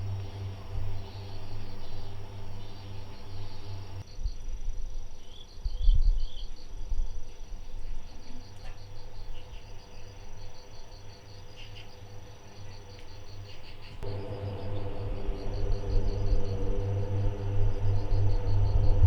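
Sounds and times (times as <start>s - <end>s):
low rumble: 0.0s - 4.1s, 14.0s - 19.0s
crickets chirping: 0.0s - 19.0s.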